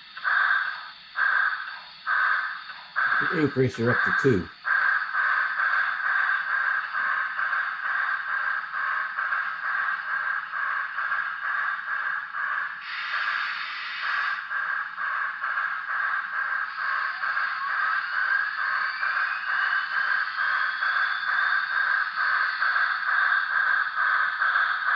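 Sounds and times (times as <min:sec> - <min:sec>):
model train steam chuffs: 0:00.0 - 0:24.9
burst of hiss: 0:12.8 - 0:14.5.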